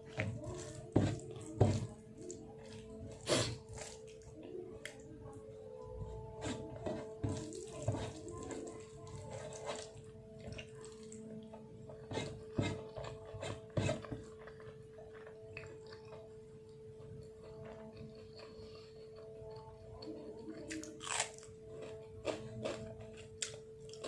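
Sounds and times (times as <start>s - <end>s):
wet mixing of food by hand: 0.0s - 5.2s, 6.0s - 15.1s
chewing: 0.0s - 5.4s, 6.2s - 24.0s.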